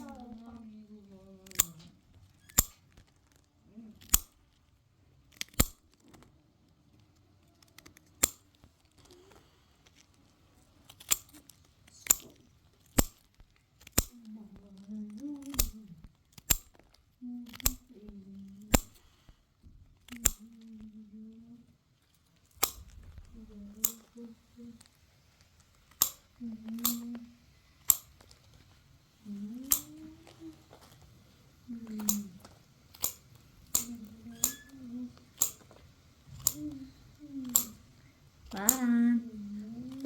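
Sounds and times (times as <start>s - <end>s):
sugar cracking with nippers: 0.0s - 40.0s
low voice humming: 20.4s - 21.7s, 23.3s - 24.8s, 29.2s - 30.7s, 33.8s - 35.3s, 36.3s - 37.9s.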